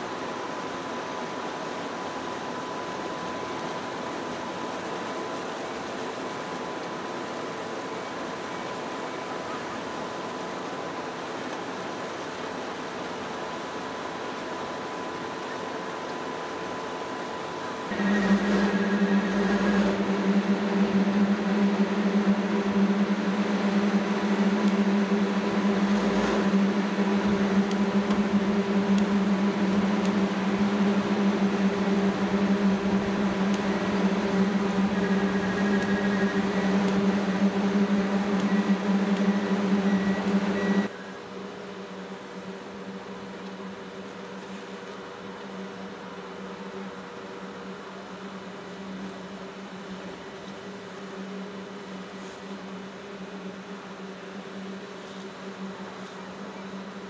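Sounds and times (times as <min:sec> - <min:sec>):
high machine whine: 0:00.0 - 0:57.0
construction machine humming: 0:17.6 - 0:41.6.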